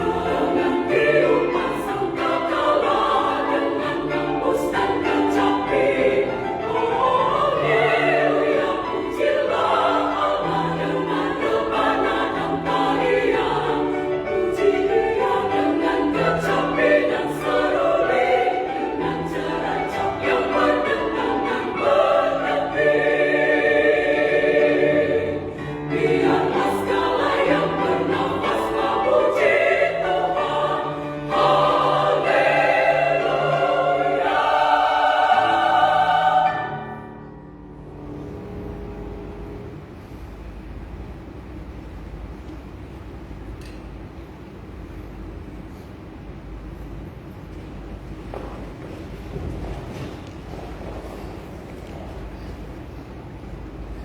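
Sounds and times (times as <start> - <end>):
women's choir singing: 0.0 - 37.8.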